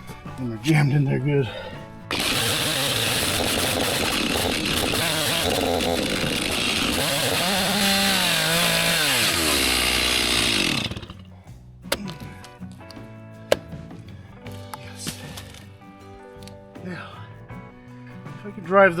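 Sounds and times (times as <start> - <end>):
chainsaw running at high revs: 2.1 - 11.3.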